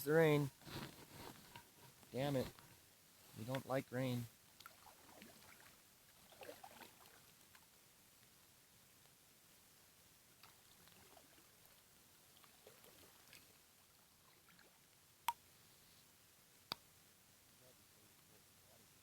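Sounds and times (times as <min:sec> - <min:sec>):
light raindrops ticking: 0:00.0 - 0:04.9.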